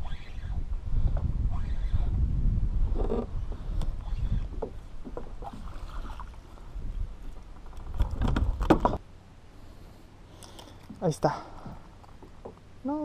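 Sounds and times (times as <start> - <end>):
wind rumbling on microphone: 0.0 - 9.0.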